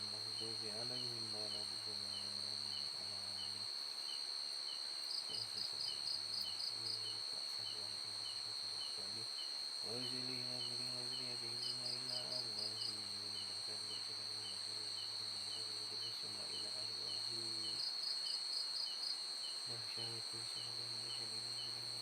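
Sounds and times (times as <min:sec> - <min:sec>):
crickets trilling: 0:00.0 - 0:22.0
low steady drone: 0:05.3 - 0:17.8.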